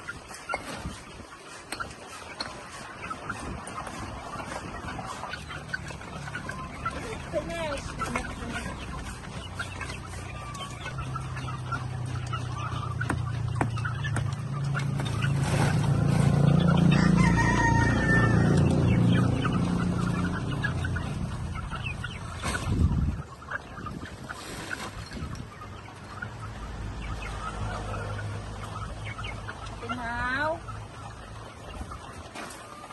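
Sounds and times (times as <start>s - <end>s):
chickens clucking: 0.0s - 32.9s
rooster crowing: 16.8s - 19.0s.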